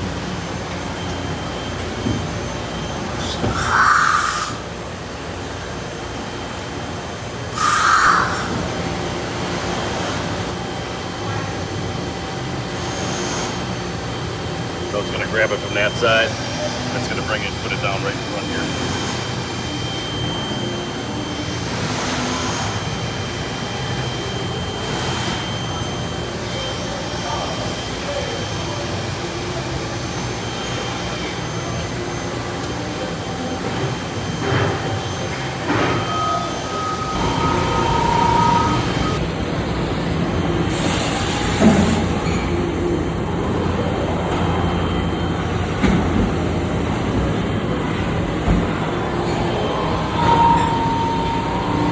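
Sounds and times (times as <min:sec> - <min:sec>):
machine hum with high whine: 0:00.0 - 0:51.9
hiss: 0:07.6 - 0:08.5.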